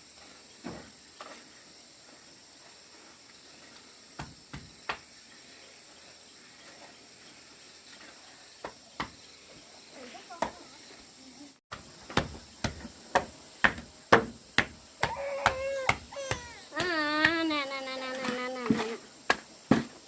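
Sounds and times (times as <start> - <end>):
sharp knocks: 11.7 - 17.4.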